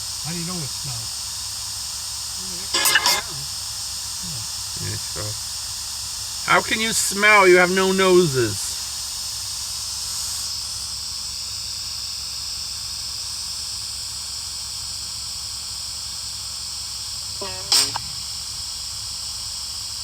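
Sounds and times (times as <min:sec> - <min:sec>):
steady hiss: 0:00.0 - 0:01.3.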